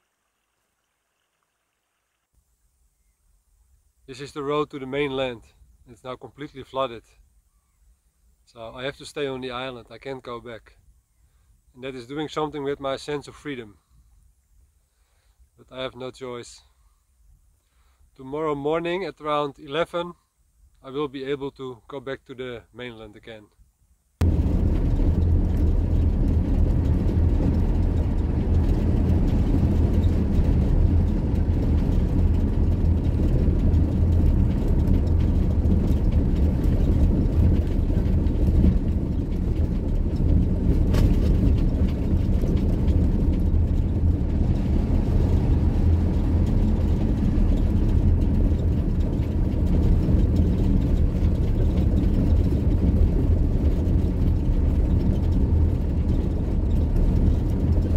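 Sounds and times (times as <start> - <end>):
van engine and road noise: 24.2 - 57.9.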